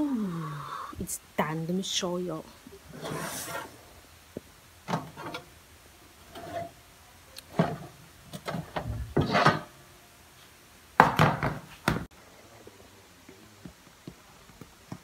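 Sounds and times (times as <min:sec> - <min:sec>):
handling knocks and scrapes: 0:02.9 - 0:03.8, 0:04.9 - 0:05.5, 0:06.2 - 0:06.8, 0:07.5 - 0:09.8
phone brushing against clothing: 0:03.0 - 0:03.8.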